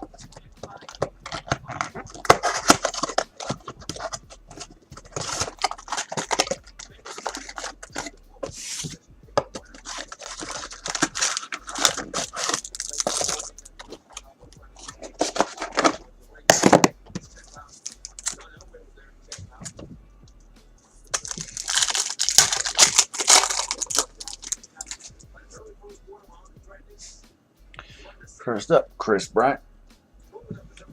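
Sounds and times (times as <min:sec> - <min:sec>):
packaging tearing and crinkling: 0:00.0 - 0:14.2, 0:14.8 - 0:18.5, 0:21.1 - 0:25.1
cards scraping and clicking: 0:00.0 - 0:18.5, 0:21.0 - 0:25.2.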